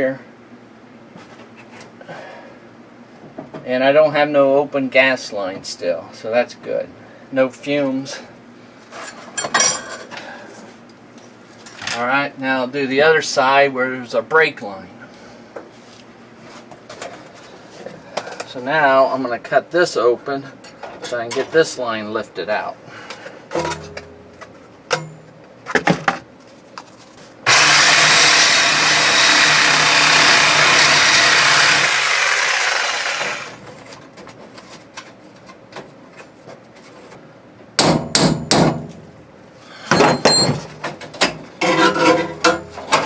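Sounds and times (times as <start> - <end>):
power saw cutting metal: 27.5 - 33.6.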